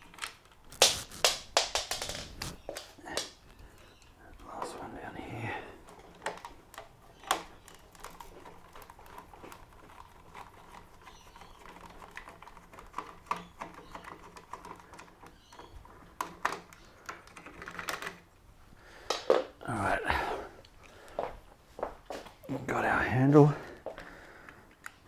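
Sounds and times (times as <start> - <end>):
plastic parts knocking: 0.7 - 3.6, 18.9 - 19.6.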